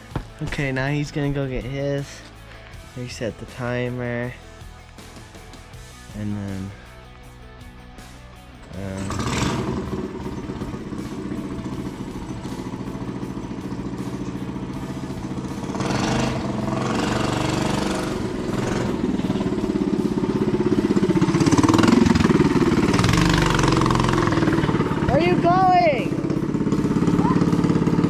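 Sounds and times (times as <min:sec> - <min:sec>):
mini bike engine running: 0:08.8 - 0:28.0.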